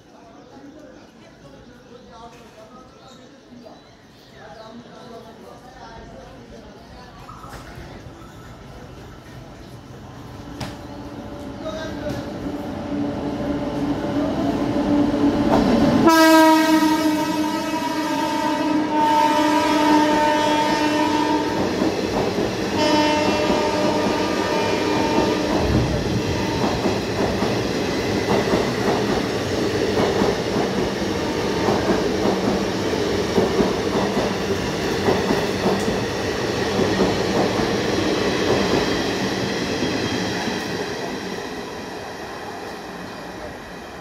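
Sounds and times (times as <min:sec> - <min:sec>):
train horn blast: 0:16.0 - 0:21.7, 0:22.7 - 0:26.8
train wheels clattering: 0:21.5 - 0:41.1.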